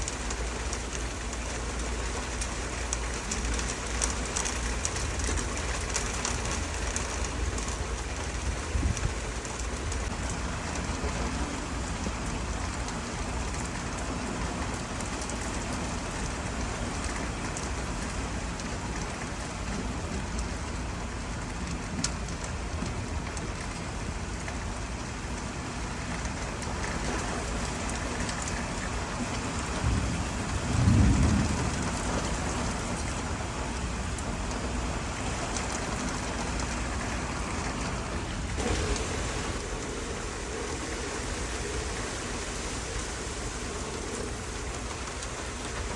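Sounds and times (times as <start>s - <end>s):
rain falling: 0.0s - 45.9s
thunder rumbling: 27.1s - 45.9s.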